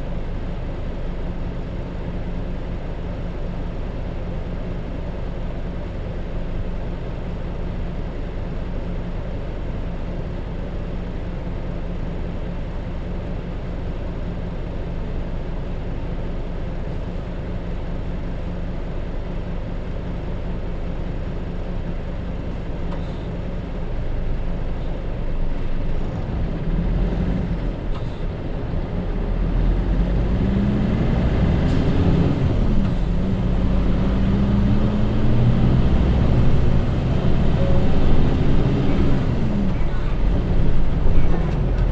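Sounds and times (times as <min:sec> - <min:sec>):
bus diesel engine revving: 0:24.5 - 0:41.9.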